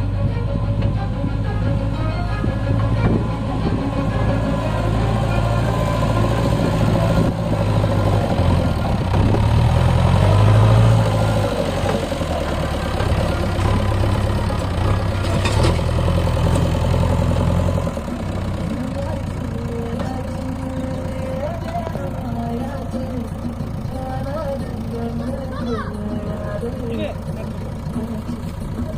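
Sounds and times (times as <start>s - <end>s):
heavy diesel engine running: 0.0s - 28.9s.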